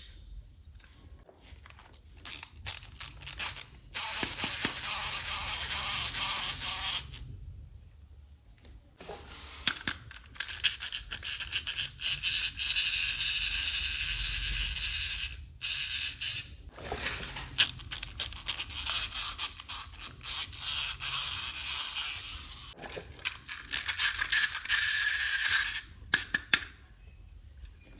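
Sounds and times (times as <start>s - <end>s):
plastic toy pieces scraping: 16.8s - 26.7s.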